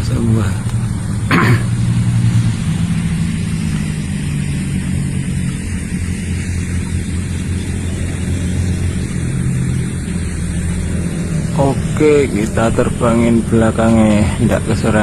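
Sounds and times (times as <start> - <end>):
rushing burst: 0.0 - 15.0
vehicle engine running: 0.0 - 15.0.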